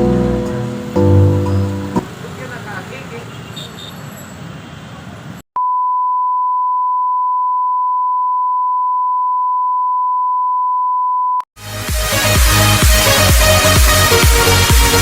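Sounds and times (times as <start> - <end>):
electronic dance music: 0.0 - 2.2, 11.6 - 15.0
street noise: 0.0 - 5.4, 12.0 - 15.0
long electronic beep: 5.6 - 11.4.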